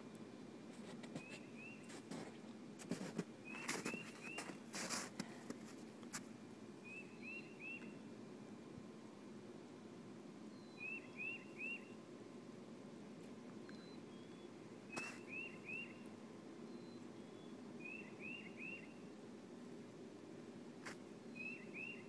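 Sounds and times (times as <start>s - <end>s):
wind or handling noise on microphone: 0.0s - 6.4s
faint outdoor background: 0.0s - 22.0s
songbird singing: 1.1s - 2.0s, 3.4s - 4.9s, 6.8s - 8.7s, 10.4s - 12.1s, 13.5s - 19.2s, 21.3s - 22.0s.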